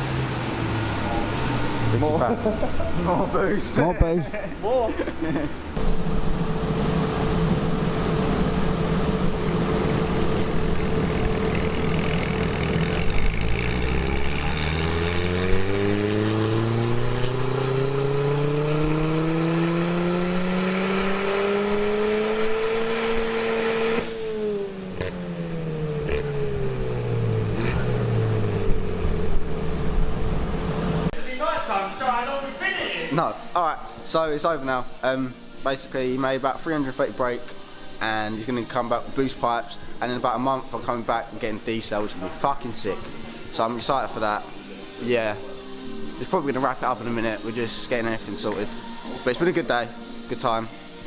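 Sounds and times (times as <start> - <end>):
car engine revving on dyno: 0.0 - 2.6, 5.8 - 31.1
dyno rollers winding down: 5.8 - 31.1.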